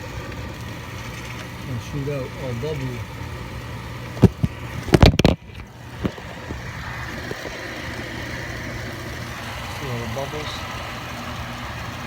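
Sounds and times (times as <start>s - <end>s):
burner motor humming: 0.0s - 12.0s
oil and air bubbles spitting: 4.1s - 12.0s.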